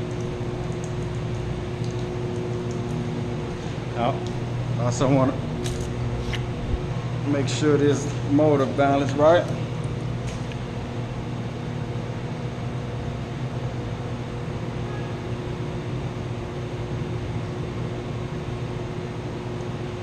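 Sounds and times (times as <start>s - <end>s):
pump motor humming: 0.0s - 13.8s.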